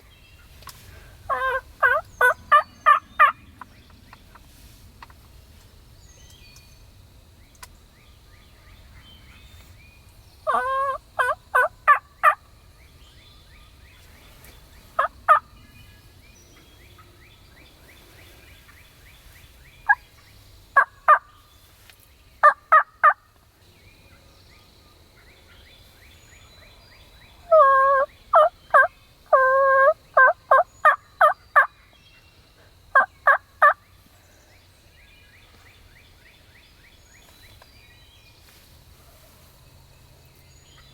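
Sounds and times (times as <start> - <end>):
turkey yelping: 1.3 - 3.4, 10.5 - 12.4, 27.5 - 31.7.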